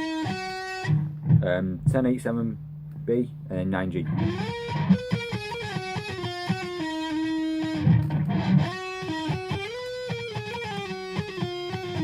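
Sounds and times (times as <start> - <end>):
electric guitar lead lick: 0.0 - 1.5, 4.1 - 12.0
low guitar chug: 0.0 - 12.0.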